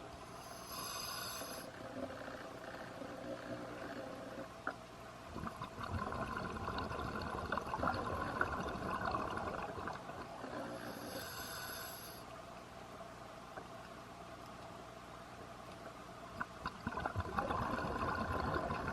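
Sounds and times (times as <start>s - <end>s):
diver breathing through regulator: 0.3s - 1.7s, 10.6s - 12.2s
bubbles crackling and gurgling: 5.3s - 10.8s, 16.3s - 18.9s.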